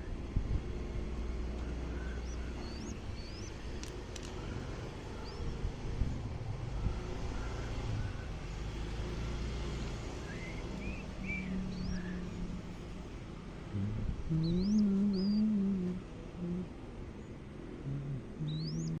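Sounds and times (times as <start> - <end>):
high rising chirps: 10.2 - 12.6
dove cooing: 10.3 - 16.8.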